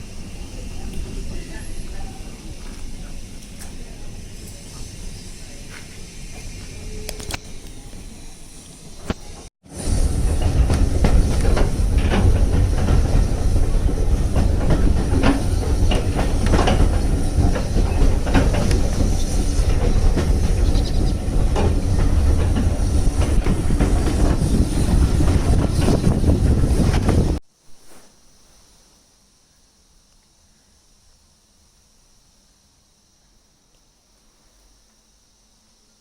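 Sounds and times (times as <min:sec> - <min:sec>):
train rumbling: 0:00.0 - 0:27.4
wheels clicking on track: 0:09.0 - 0:27.4.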